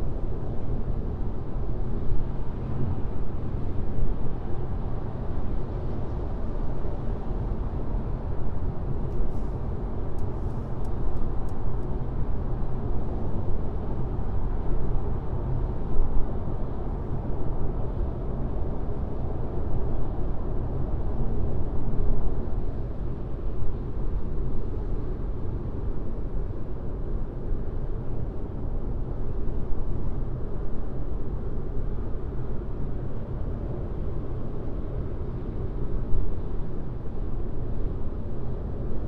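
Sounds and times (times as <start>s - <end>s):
faint light ticks: 10.1s - 11.9s.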